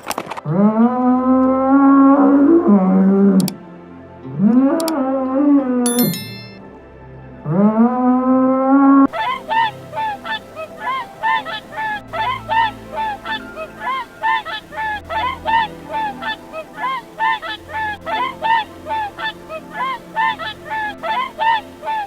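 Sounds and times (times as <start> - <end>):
swans honking: 9.1 - 22.0.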